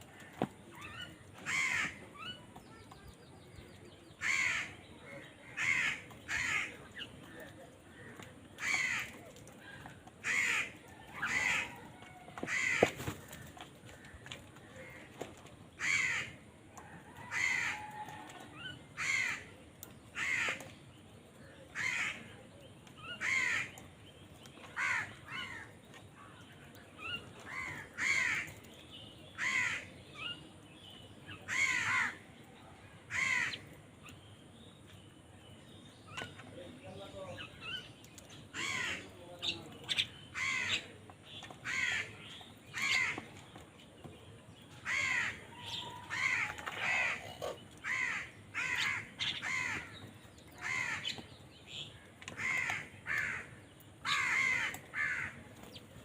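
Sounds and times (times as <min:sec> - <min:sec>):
crows cawing: 0:01.4 - 0:02.0, 0:04.2 - 0:09.5, 0:10.2 - 0:15.2, 0:15.8 - 0:16.4, 0:17.2 - 0:18.3, 0:19.0 - 0:19.6, 0:20.2 - 0:20.7, 0:21.7 - 0:22.3, 0:23.2 - 0:23.8, 0:24.7 - 0:25.8, 0:27.5 - 0:28.6, 0:29.4 - 0:30.0, 0:31.5 - 0:32.3, 0:33.1 - 0:33.7, 0:38.5 - 0:39.2, 0:40.3 - 0:40.9, 0:41.6 - 0:43.3, 0:44.8 - 0:50.0, 0:50.6 - 0:51.2, 0:52.3 - 0:55.4.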